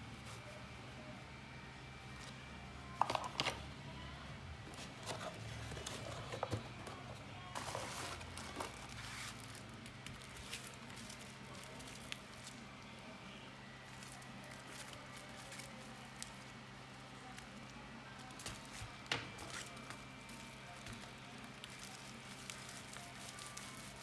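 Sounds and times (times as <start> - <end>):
packaging rustling and crinkling: 3.0 - 3.6, 4.7 - 12.7, 13.9 - 16.6, 18.2 - 24.0.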